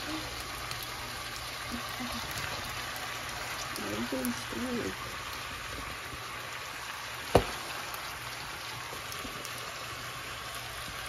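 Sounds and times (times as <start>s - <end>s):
chicken sizzling in hot oil: 0.0s - 11.0s
sharp knock: 7.3s - 7.6s.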